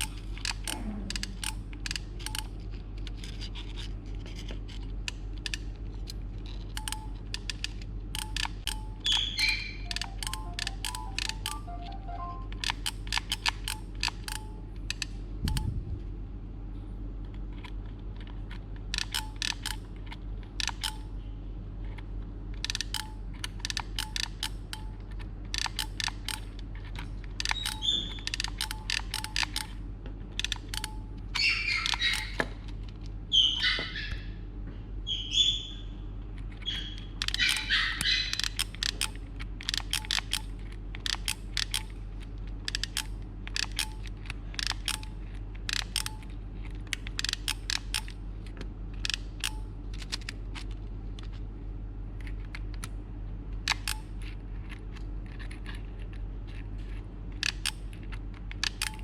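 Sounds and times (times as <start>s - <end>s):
low electrical hum: 0.0s - 59.0s
sharp clicks: 6.5s - 15.7s, 18.8s - 21.1s, 22.6s - 29.8s, 30.4s - 33.0s, 36.4s - 42.0s, 42.7s - 46.3s, 46.9s - 48.2s
short chirp-like squeaks: 9.0s - 12.5s, 27.5s - 28.4s, 31.4s - 32.4s, 33.3s - 34.2s, 35.1s - 36.0s.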